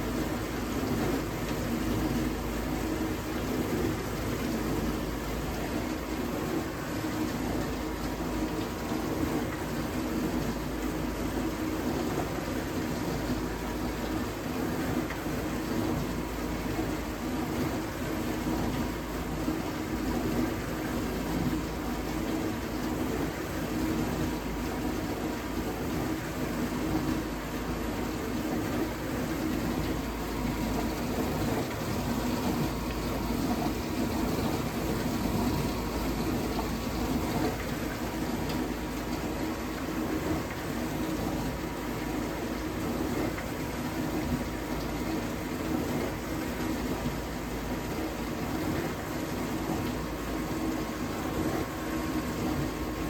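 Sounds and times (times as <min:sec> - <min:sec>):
dishwasher pump hum: 0:00.0 - 0:53.0
water spraying inside dishwasher: 0:00.0 - 0:53.0.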